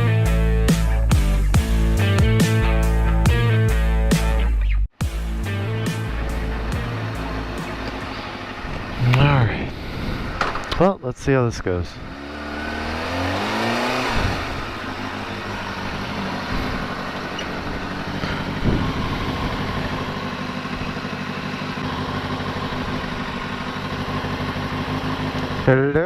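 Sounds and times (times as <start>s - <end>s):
motorcycle engine pulling away: 5.5s - 10.7s, 12.0s - 26.0s.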